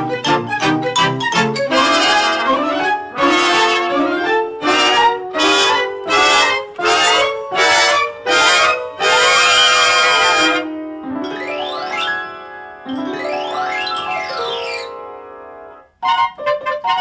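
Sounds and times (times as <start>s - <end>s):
brass band chords: 0.0s - 10.9s.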